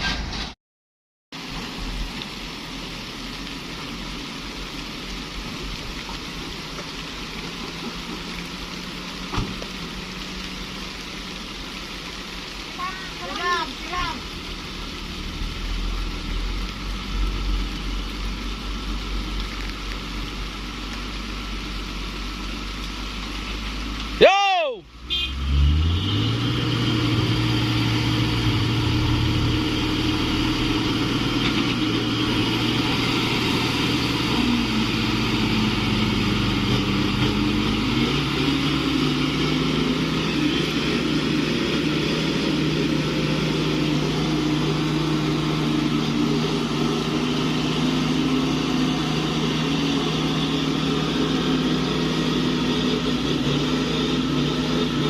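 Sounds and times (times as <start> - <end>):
diesel truck engine running: 25.1 - 55.0.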